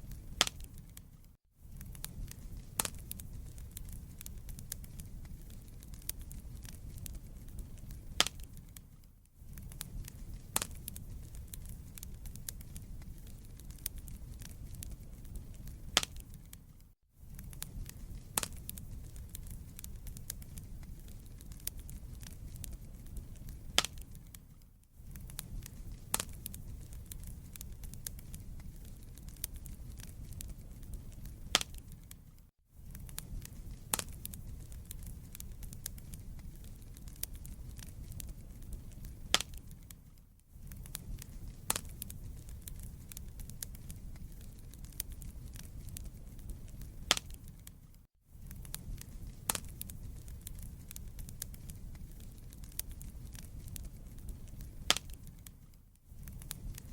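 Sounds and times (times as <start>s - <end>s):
wood fire crackling: 0.0s - 56.9s.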